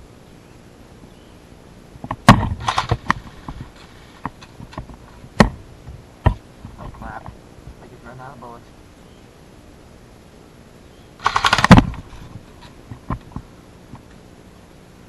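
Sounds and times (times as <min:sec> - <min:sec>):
airsoft gun shots: 0:02.2 - 0:03.2, 0:11.2 - 0:12.1.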